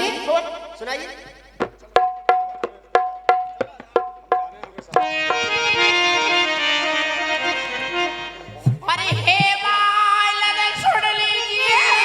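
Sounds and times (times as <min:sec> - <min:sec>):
harmonium chords: 0:00.0 - 0:12.0
hand drum beat: 0:01.5 - 0:06.1, 0:08.4 - 0:09.8.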